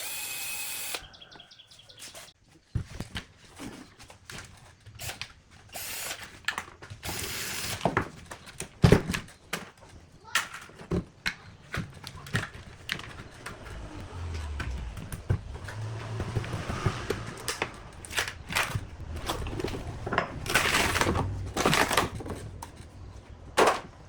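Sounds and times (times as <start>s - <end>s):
sharp clicks and knocks: 10.4s - 23.0s.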